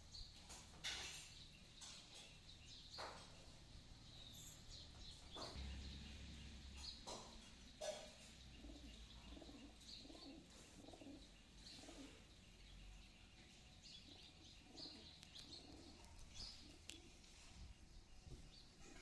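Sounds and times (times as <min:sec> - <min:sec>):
sparrows chirping: 0:00.0 - 0:19.0
pigeons cooing: 0:05.4 - 0:17.3.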